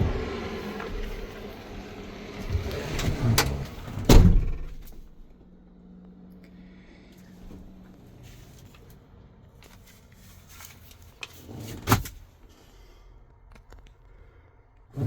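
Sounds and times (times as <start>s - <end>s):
truck door shutting: 0.0s - 1.8s, 2.4s - 5.3s.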